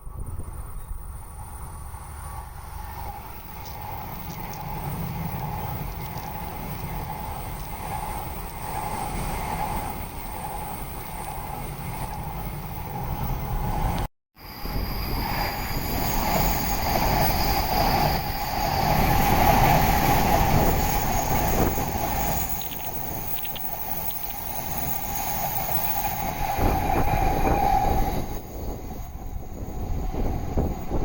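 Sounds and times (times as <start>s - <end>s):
train passing at speed: 0.0s - 31.0s.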